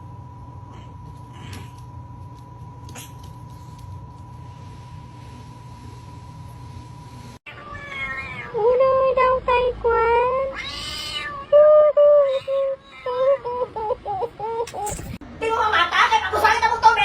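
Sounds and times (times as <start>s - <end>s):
cat meowing: 7.5s - 8.6s, 10.5s - 11.6s.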